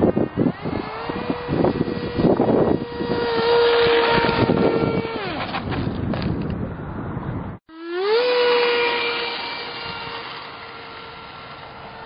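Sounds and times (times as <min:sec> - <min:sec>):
model plane motor whining: 0:00.0 - 0:05.9, 0:07.7 - 0:12.0
wind buffeting microphone: 0:00.0 - 0:07.6.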